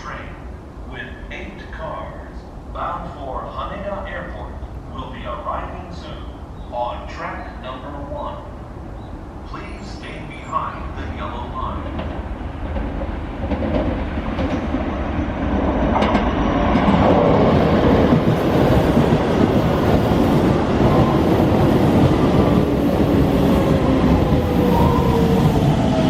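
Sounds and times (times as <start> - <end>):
train wheels clattering on rails: 11.7 - 26.0.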